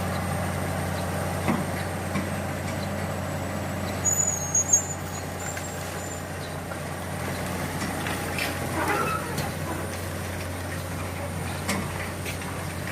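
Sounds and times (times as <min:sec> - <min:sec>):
excavator engine running: 0:00.0 - 0:12.9.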